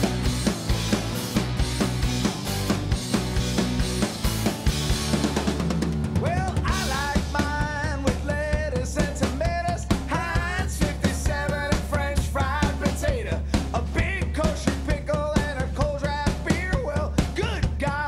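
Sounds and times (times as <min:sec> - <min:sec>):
lead melody line: 0:00.0 - 0:07.4
bass: 0:00.0 - 0:18.0
drum kit beat: 0:00.0 - 0:18.0.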